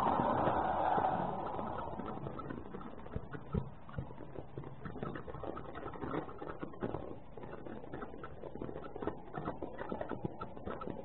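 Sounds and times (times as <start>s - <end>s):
small irregular clicks: 0.0s - 11.0s.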